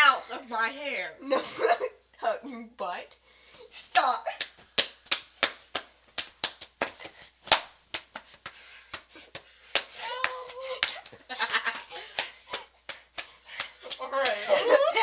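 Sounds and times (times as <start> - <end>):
hands slapping bodies and bedding: 4.0 - 14.4
girl whining: 10.0 - 11.1.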